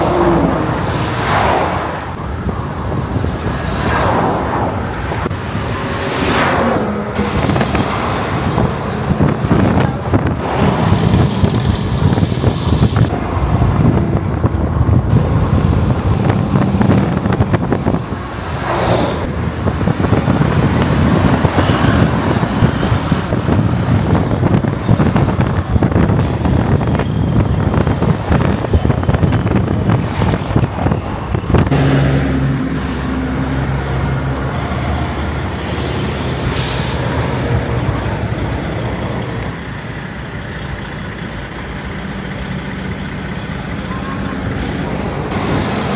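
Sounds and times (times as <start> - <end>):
trucks driving past: 0.0 - 45.9.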